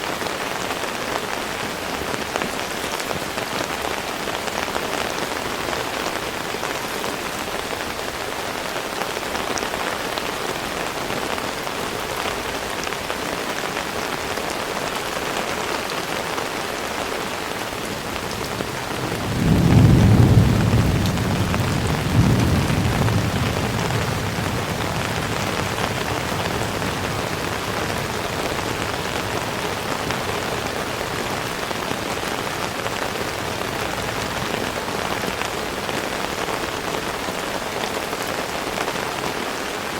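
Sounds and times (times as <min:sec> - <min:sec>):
heavy rain falling: 0:00.0 - 0:39.9
thunder rumbling low: 0:17.9 - 0:31.2.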